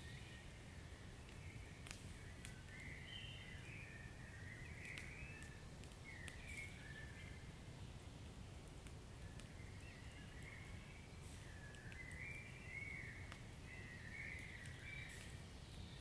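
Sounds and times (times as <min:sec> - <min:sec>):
fire crackles: 0:00.0 - 0:16.0
log fire rumbling: 0:00.0 - 0:16.0.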